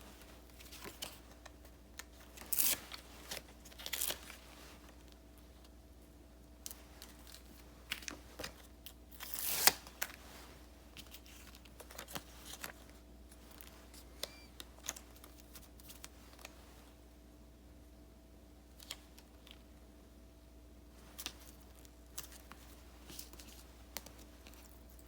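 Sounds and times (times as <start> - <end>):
paper crinkling and tapping: 0.2 - 5.7, 6.6 - 8.7, 10.9 - 16.6, 21.0 - 25.0
paper tearing rustle with snap: 2.1 - 4.4, 9.2 - 10.2.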